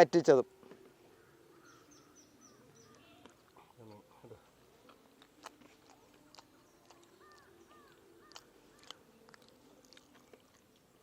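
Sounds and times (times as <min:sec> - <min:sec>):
faint bird calls: 0:00.6 - 0:11.0
person eating: 0:04.7 - 0:11.0.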